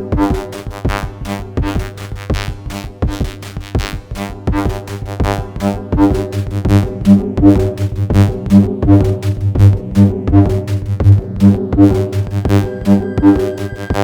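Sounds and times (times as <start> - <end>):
sequenced pitched drum hits: 5.2 - 14.0
pulsing bass note: 6.0 - 14.0.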